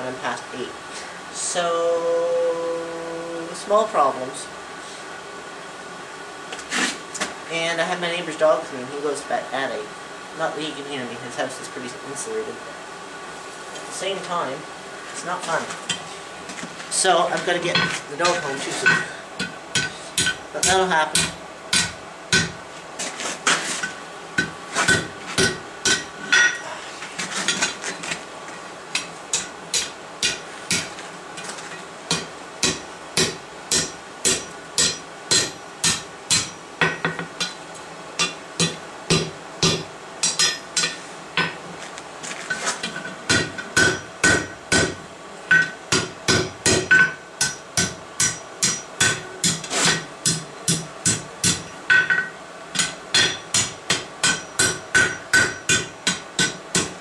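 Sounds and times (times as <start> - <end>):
hammer striking steel on anvil: 17.7 - 22.6, 24.4 - 26.6, 29.0 - 30.9, 32.1 - 37.6, 38.2 - 41.6, 42.9 - 57.0.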